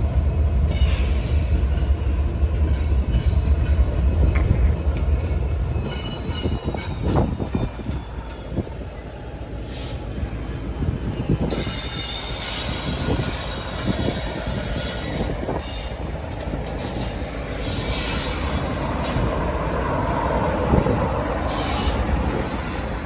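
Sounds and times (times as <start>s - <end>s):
freight train rumbling past: 0.0s - 23.0s
faint high wheel squeal: 11.2s - 16.1s, 16.8s - 19.4s, 21.4s - 22.8s.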